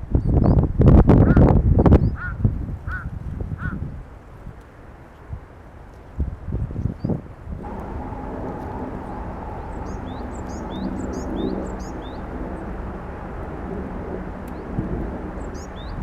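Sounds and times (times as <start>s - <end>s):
steady low hum: 7.6s - 16.0s.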